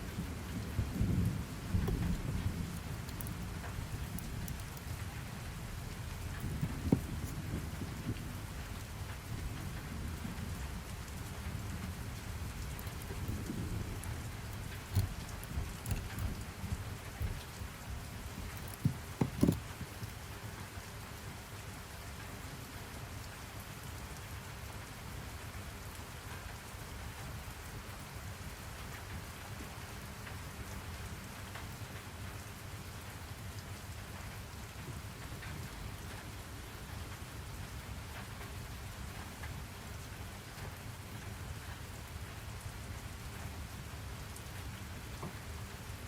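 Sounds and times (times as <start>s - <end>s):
thunder rumbling: 0.0s - 18.4s
steady rain falling: 0.0s - 46.0s
loud knocks: 18.7s - 20.0s.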